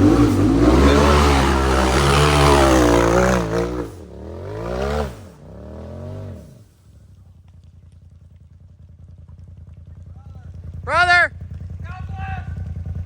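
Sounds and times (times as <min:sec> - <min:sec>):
engine revving: 0:00.0 - 0:06.7.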